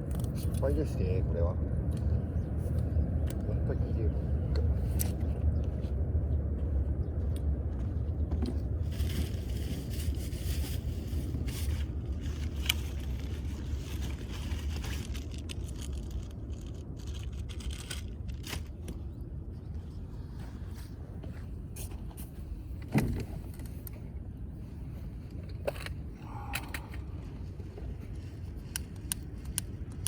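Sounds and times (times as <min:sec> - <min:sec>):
steady low rumble: 0:00.0 - 0:30.0
firewood clicking and scraping: 0:08.3 - 0:19.1, 0:25.3 - 0:30.0.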